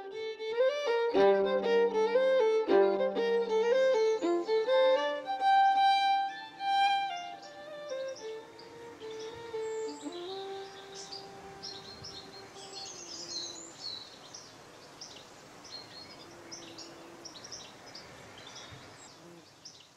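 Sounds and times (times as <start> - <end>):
held fiddle note: 0.0 - 13.5
faint background hiss: 0.0 - 19.9
small birds chirping: 1.6 - 19.9.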